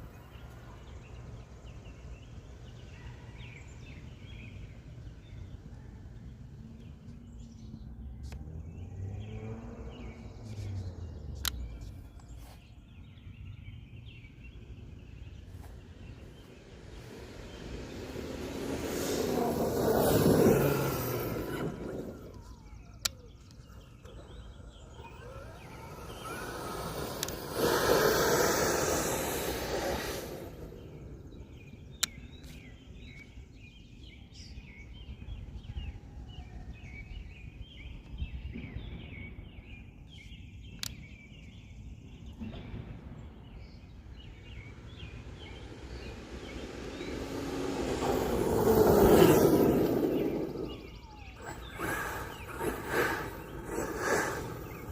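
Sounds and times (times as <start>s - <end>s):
birds chirping: 0.0s - 54.9s
toy jet truck fan rushing: 15.4s - 32.0s, 43.9s - 54.9s.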